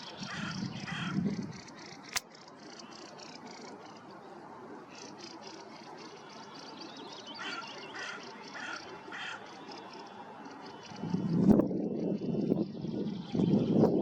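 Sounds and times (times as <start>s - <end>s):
faint songbird chirps: 0.0s - 14.0s
running river water: 1.6s - 11.1s
sharp click: 2.1s - 2.4s
ducks quacking: 7.4s - 9.5s.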